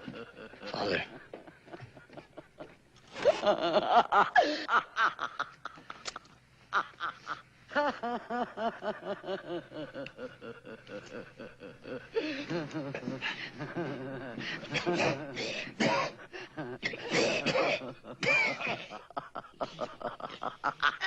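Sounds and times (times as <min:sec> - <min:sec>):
demonic voice laughing: 0:00.0 - 0:15.6, 0:16.3 - 0:21.0.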